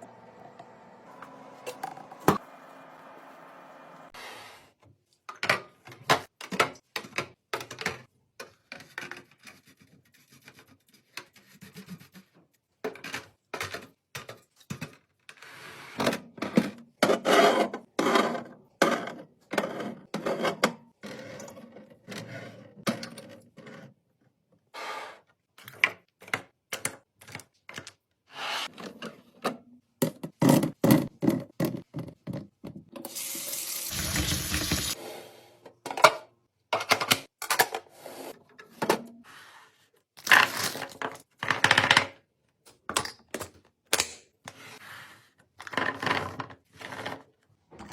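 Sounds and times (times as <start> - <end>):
water running: 33.0 - 35.0.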